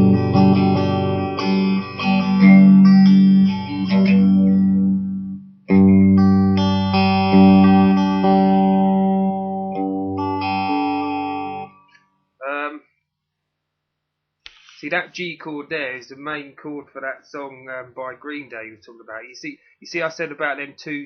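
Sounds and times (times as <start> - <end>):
electric guitar chord ringing: 0.0 - 11.9.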